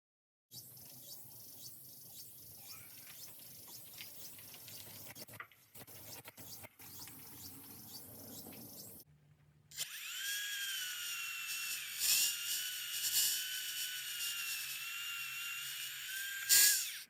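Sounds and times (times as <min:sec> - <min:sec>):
small birds chirping: 0:00.5 - 0:09.1.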